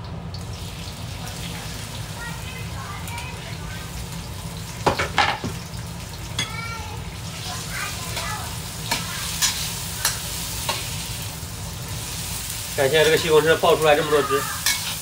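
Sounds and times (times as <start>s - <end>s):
tomatoes sizzling in oil: 0.0s - 15.0s
spatula scraping a pan: 8.1s - 11.0s, 14.5s - 15.0s.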